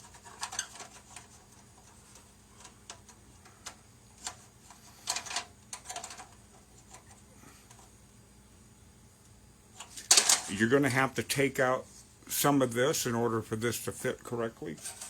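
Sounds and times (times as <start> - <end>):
plastic parts clicking and tapping: 5.0 - 7.8.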